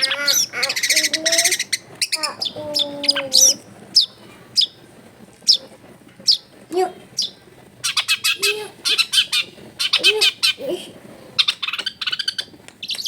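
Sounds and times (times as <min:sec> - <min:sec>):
bird harsh chattering: 0:00.0 - 0:04.8, 0:05.4 - 0:06.5, 0:07.2 - 0:10.7, 0:11.4 - 0:13.0
bird sharp high calls: 0:00.0 - 0:04.8, 0:05.5 - 0:06.5, 0:07.2 - 0:10.6.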